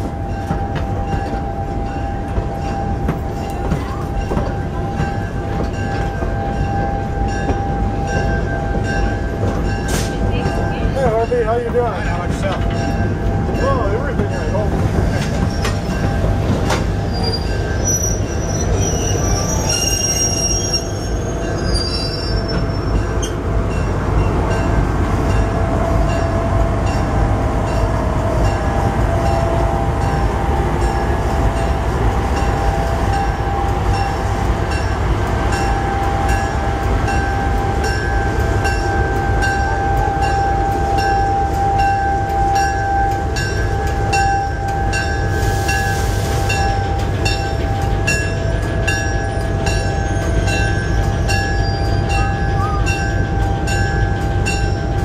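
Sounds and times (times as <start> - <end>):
diesel locomotive passing: 0.0 - 55.0
steel wheels rumbling: 0.0 - 55.0
wheel squeal: 17.0 - 23.4.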